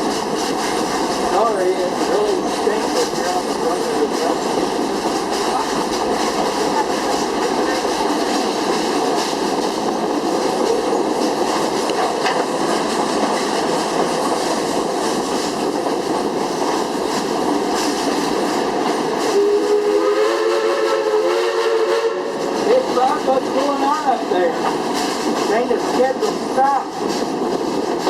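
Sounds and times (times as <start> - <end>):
train rumbling and clattering on track: 0.0 - 28.0
steam locomotive whistle: 19.3 - 22.6.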